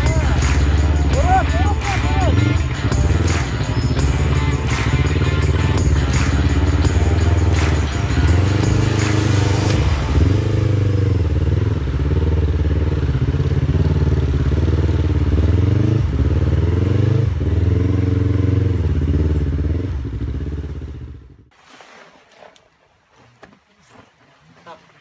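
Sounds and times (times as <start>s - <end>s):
motorcycle engine revving: 0.0s - 21.5s.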